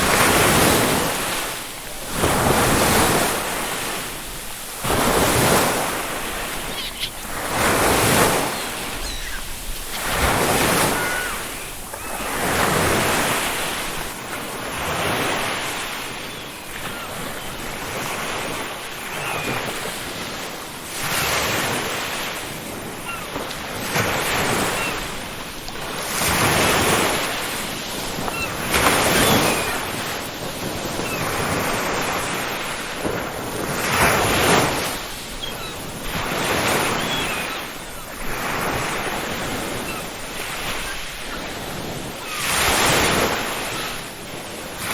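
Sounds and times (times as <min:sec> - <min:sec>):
ocean waves breaking: 0:00.0 - 0:44.9
seagull calls: 0:01.9 - 0:14.1, 0:15.2 - 0:19.8, 0:23.0 - 0:23.4, 0:24.2 - 0:25.2, 0:27.7 - 0:30.2, 0:30.8 - 0:31.5, 0:35.2 - 0:44.0.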